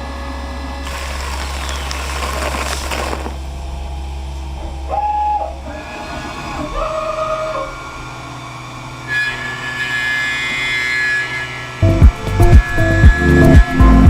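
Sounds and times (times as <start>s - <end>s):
cnc lathe high whine with hiss: 6.8s - 13.6s.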